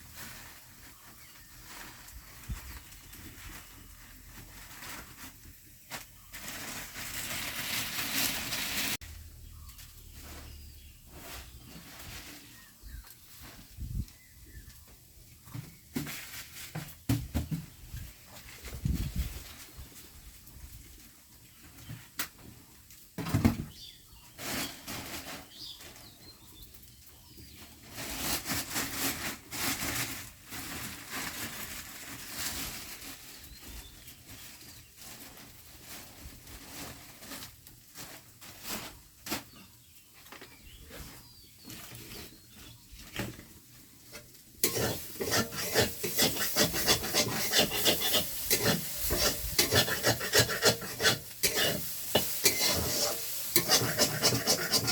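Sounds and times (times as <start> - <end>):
food scraping and rasping: 44.6 - 54.9.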